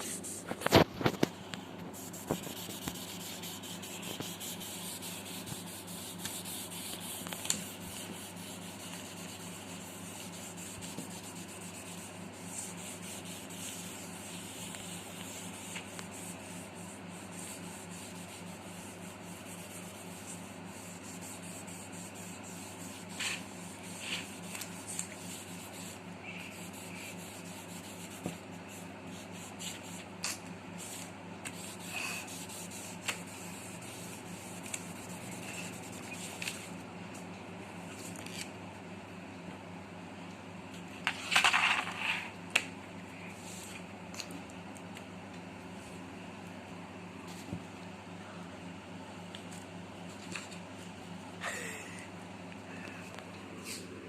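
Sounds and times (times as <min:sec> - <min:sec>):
pencil shading on paper: 0:01.9 - 0:30.0.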